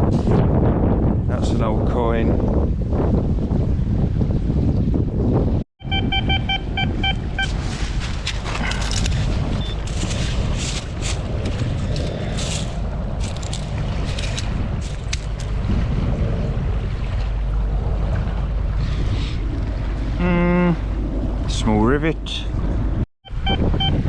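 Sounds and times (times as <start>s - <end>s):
wind buffeting microphone: 0.0s - 24.0s
metal detector beeping: 5.8s - 7.6s, 9.6s - 10.0s, 23.3s - 24.0s
crunching and scraping in stony ground: 7.4s - 16.4s.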